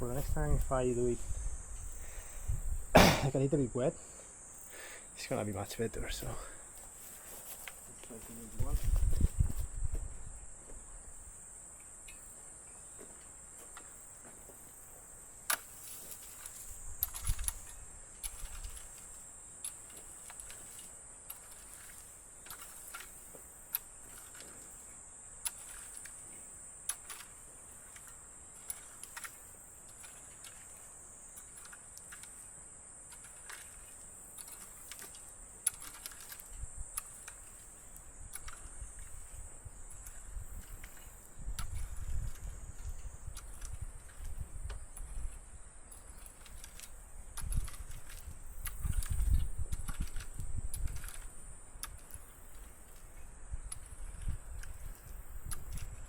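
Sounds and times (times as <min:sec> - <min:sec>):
high-pitched insect drone: 0:00.0 - 0:56.0
sharp clicks and light knocks: 0:15.4 - 0:56.0.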